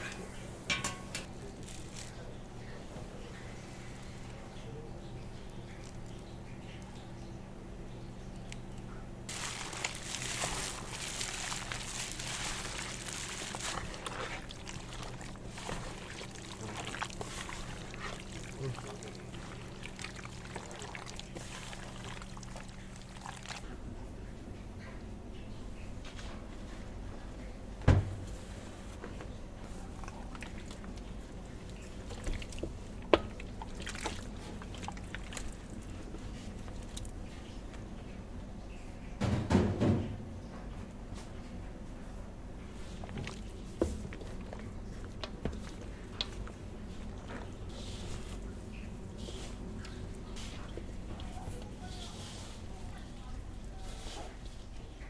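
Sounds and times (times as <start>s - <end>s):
knocks and clicks of food handling: 0.0s - 2.1s, 27.8s - 28.4s, 31.7s - 35.4s, 39.2s - 40.8s, 43.0s - 47.6s.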